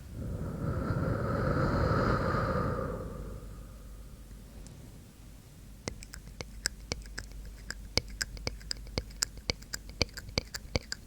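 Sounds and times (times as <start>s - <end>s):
wet tongue and lip clicks: 5.8s - 11.0s.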